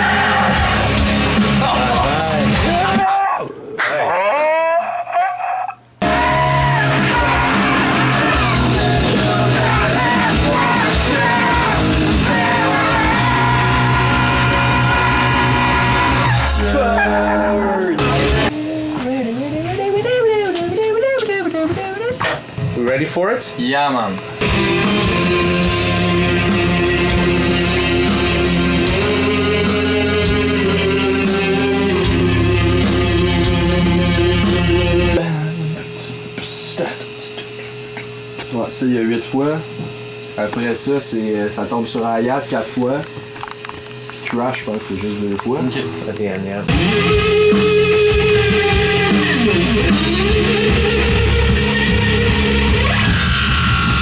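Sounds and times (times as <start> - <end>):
rock band playing: 0.0 - 3.0, 6.0 - 18.6, 24.4 - 35.2, 46.7 - 54.0
person singing lead vocal: 6.0 - 22.2, 24.5 - 36.0.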